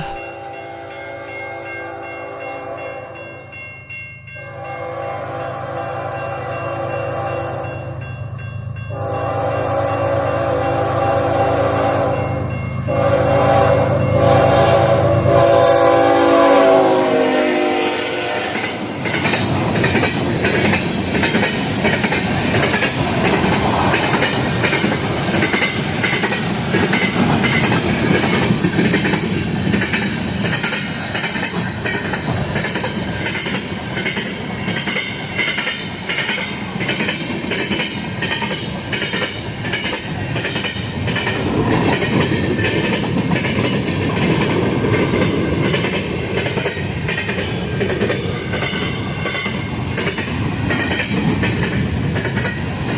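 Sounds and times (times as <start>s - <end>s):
train wheels rumbling on rail: 0.0s - 0.2s, 8.9s - 52.9s
wheels clickety-clack: 19.0s - 52.9s.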